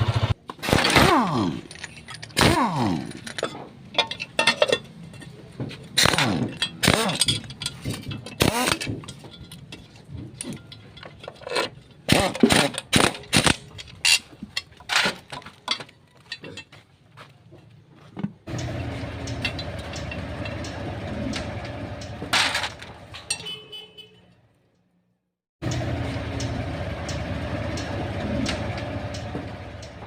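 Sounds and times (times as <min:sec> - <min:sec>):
motorcycle engine running: 0:00.0 - 0:00.4, 0:18.5 - 0:23.1, 0:25.6 - 0:30.0
metallic clinks of tools: 0:01.6 - 0:05.5, 0:06.3 - 0:12.4, 0:13.2 - 0:16.8.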